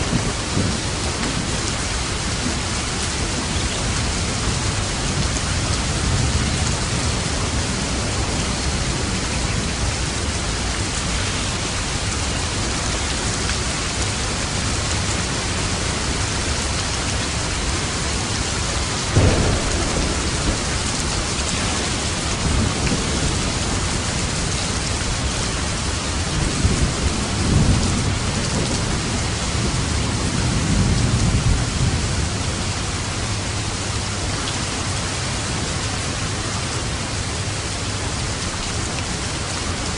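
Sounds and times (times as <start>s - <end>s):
rolling thunder rumbles: 0.0s - 34.3s
heavy rain hissing: 0.0s - 39.9s
thunder crack: 19.1s - 25.3s.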